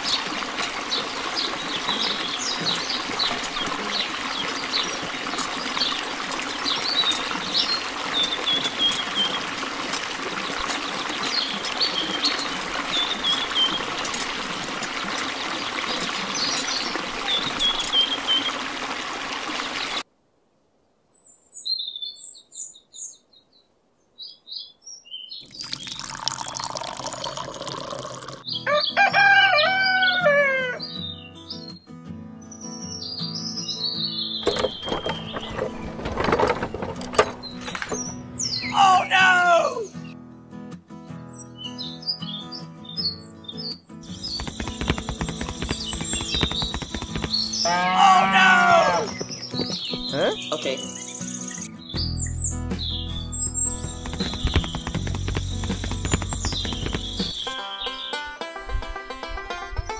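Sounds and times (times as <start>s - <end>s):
water splashing into basin: 0.0s - 20.0s, 25.4s - 28.4s, 44.2s - 49.9s, 53.8s - 57.6s
bird chirps: 21.2s - 25.8s, 30.8s - 36.0s, 41.1s - 58.4s
music: 28.4s - 59.9s.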